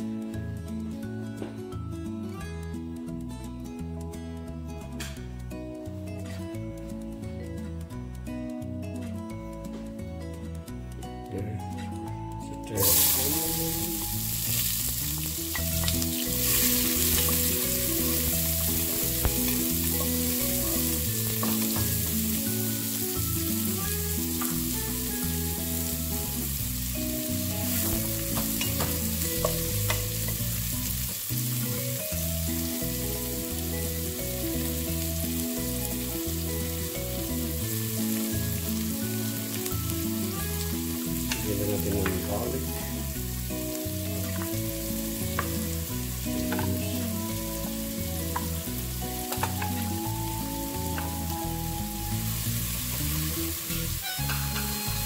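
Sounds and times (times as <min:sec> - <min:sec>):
onions sizzling in hot oil: 0:12.8 - 0:55.0.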